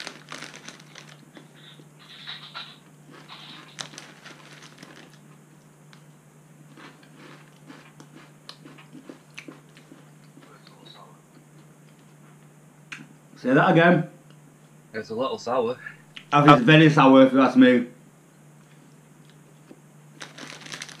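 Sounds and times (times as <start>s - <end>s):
foil snack bag handled: 0.0s - 1.5s, 3.2s - 5.2s, 20.2s - 21.0s
crunching and chewing snacks: 0.0s - 1.8s, 3.1s - 6.1s, 6.7s - 10.8s, 18.7s - 21.0s
low steady hum: 0.0s - 21.0s.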